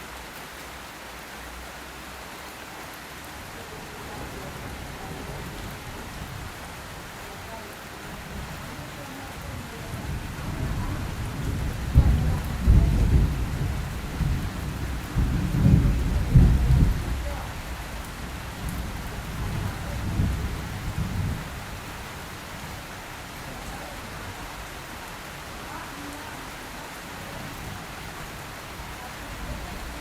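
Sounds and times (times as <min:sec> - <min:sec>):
steady rain falling: 0:00.0 - 0:30.0
thunder rolling: 0:09.7 - 0:21.8.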